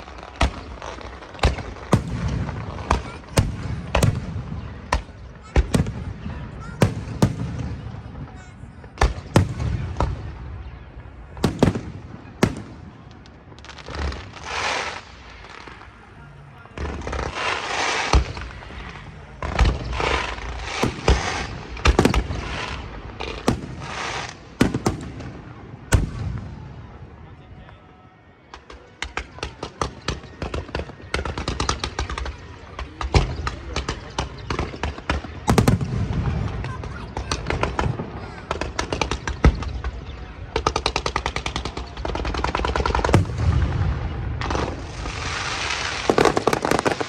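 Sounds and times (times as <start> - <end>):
firework crackle: 0.0 - 27.0, 28.6 - 47.0
firework shells bursting: 42.3 - 47.0
deep firework boom: 43.1 - 45.4.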